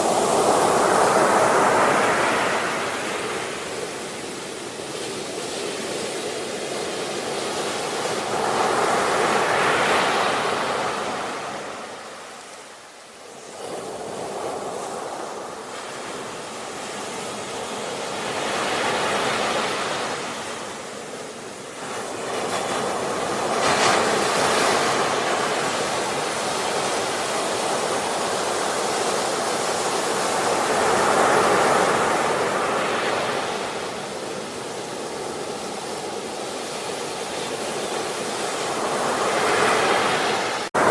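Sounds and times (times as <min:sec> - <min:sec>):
ocean waves breaking on shore: 0:00.0 - 0:40.9.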